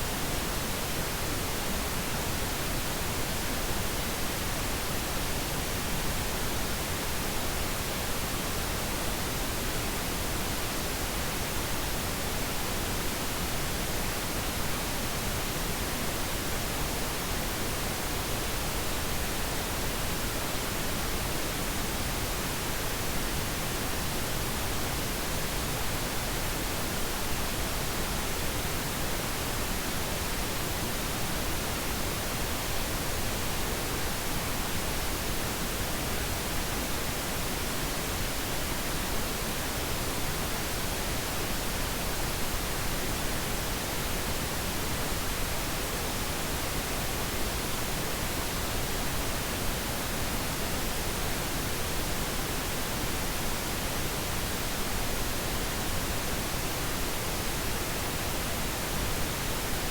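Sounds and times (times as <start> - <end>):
steady pink noise hiss: 0.0 - 59.9.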